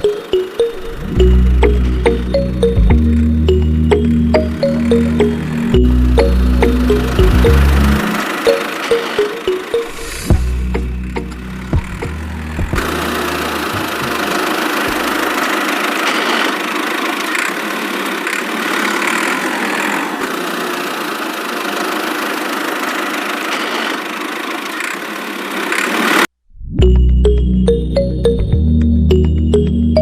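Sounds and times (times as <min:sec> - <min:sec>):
low music: 0:00.0 - 0:14.3
small motor running: 0:05.6 - 0:26.3.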